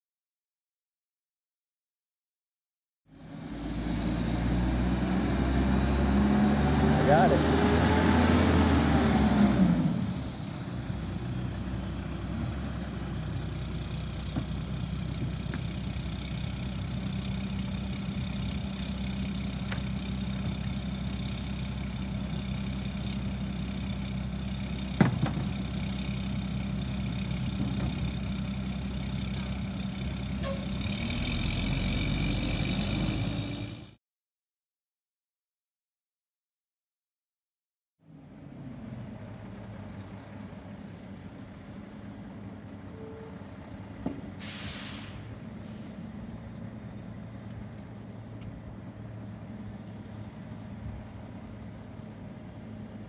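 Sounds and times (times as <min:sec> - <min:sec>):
garbage truck engine idling: 0:10.8 - 0:31.3.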